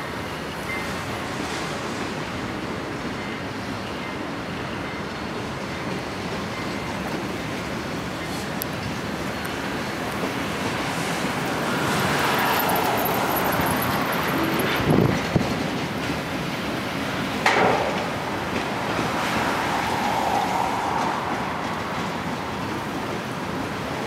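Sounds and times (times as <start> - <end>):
freight train wheels clacking: 2.0 - 24.0
sharp knocks: 17.4 - 18.7.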